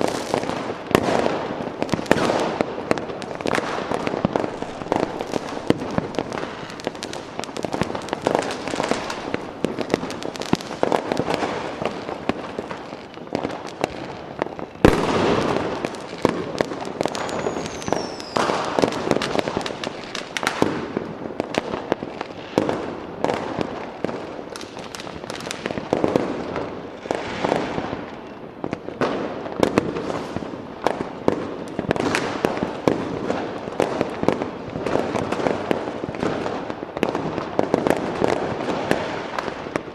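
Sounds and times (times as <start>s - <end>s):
falling firework whistle: 0.0s - 20.8s
fireworks crackling and popping: 0.0s - 39.9s
loud firework bang: 14.9s - 16.4s.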